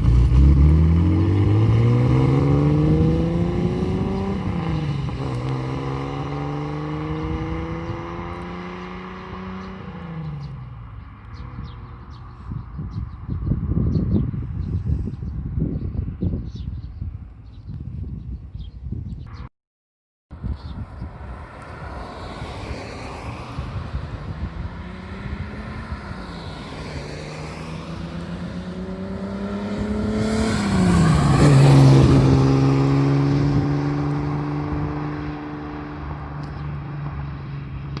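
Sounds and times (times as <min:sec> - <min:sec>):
car engine passing by: 0:00.0 - 0:10.7, 0:21.0 - 0:38.0.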